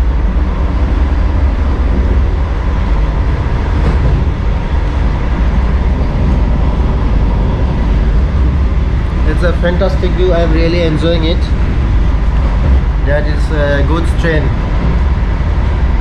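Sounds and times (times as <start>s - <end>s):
electric train rumble inside coach: 0.0s - 16.0s.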